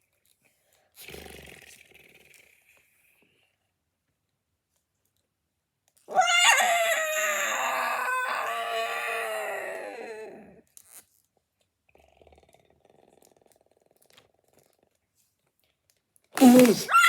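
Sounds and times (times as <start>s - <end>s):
high-pitched dinosaur roar: 6.1s - 10.6s, 16.4s - 17.0s.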